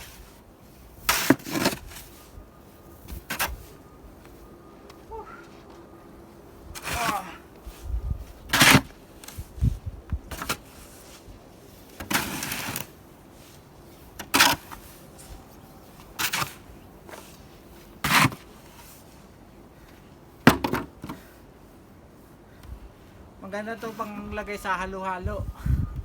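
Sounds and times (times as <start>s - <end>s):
snow shovel scraping snow: 0.0s - 2.3s, 6.8s - 9.6s, 10.3s - 15.3s, 16.0s - 19.2s.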